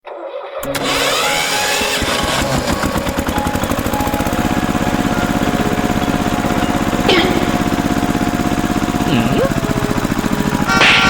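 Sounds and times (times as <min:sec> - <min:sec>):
tractor engine chugging: 0:00.6 - 0:11.0.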